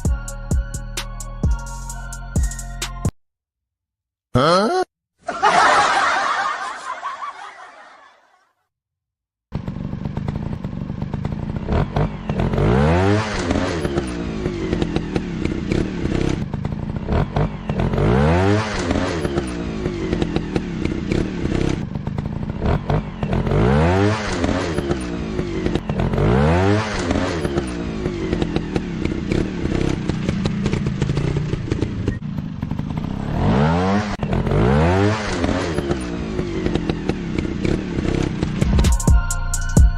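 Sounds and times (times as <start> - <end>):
dirt bike engine revving: 9.6 - 38.6.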